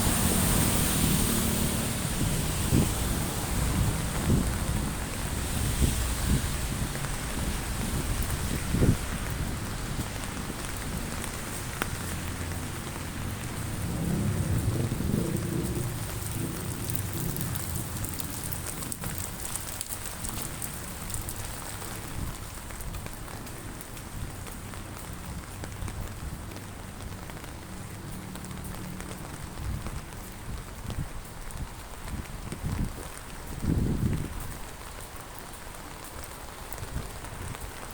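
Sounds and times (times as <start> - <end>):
low rumble: 0.0 - 20.7
heavy rain: 0.0 - 37.9.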